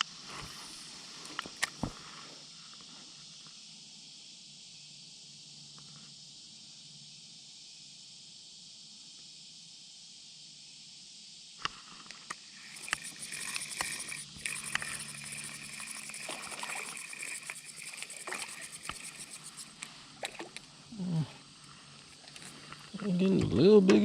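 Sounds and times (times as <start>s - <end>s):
sharp clicks and knocks: 12.6s - 20.6s.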